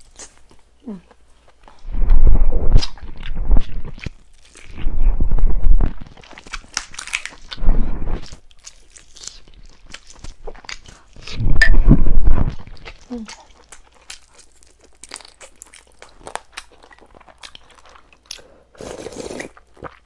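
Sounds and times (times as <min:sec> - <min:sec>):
person chewing chicken: 0:02.8 - 0:04.9, 0:05.9 - 0:07.6, 0:08.2 - 0:11.5, 0:12.5 - 0:20.0.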